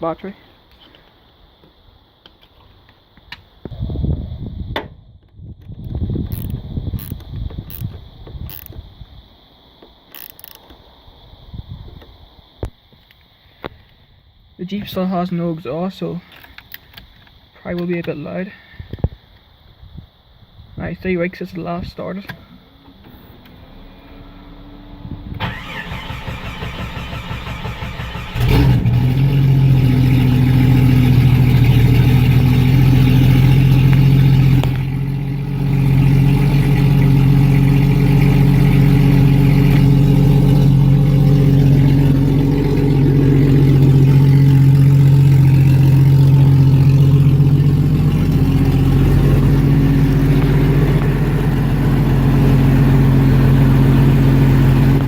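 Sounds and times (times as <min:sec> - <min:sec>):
starter motor cranking: 0:25.4 - 0:29.2
loud engine running: 0:27.6 - 0:55.0.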